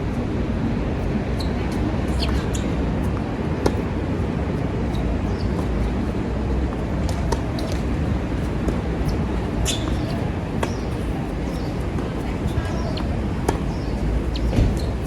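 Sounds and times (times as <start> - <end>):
wind buffeting microphone: 0.0 - 15.0
ticks and squeaks on court: 1.4 - 2.8, 7.1 - 7.9, 8.6 - 15.0
tennis ball strike: 2.2 - 3.9, 4.9 - 14.9.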